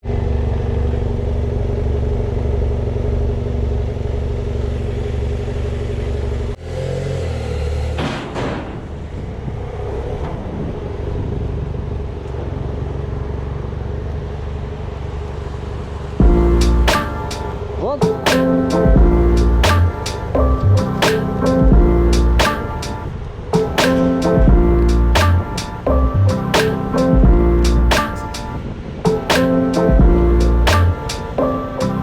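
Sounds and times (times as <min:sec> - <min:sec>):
road noise: 0:00.0 - 0:32.0
motorcycle engine running: 0:00.1 - 0:06.6, 0:16.1 - 0:16.6.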